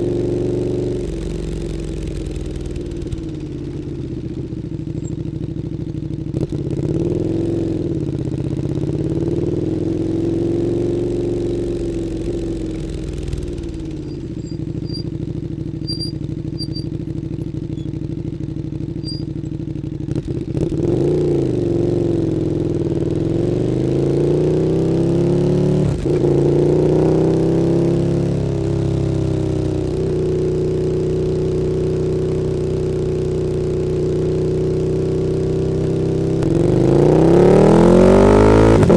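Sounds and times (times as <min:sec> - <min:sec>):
motorcycle engine revving: 0:12.0 - 0:17.9, 0:19.0 - 0:19.8.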